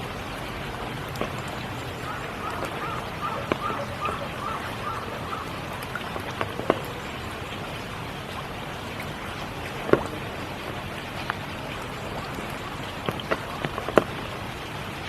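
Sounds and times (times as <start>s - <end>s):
rain falling: 0.0s - 15.0s
water drip: 0.0s - 15.0s
frog calling: 1.3s - 6.8s.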